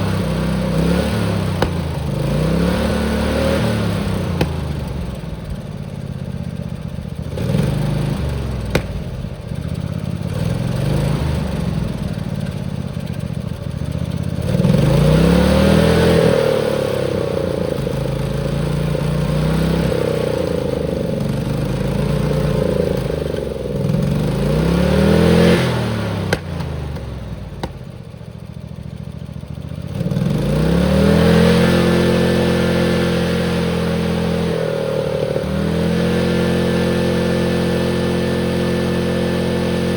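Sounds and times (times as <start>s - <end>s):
tractor engine revving: 0.0s - 28.6s, 29.8s - 39.9s.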